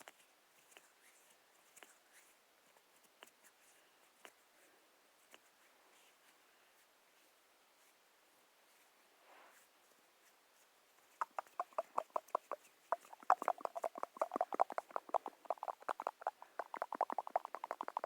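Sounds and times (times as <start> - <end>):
rapid tapping on hard object: 11.2 - 18.0.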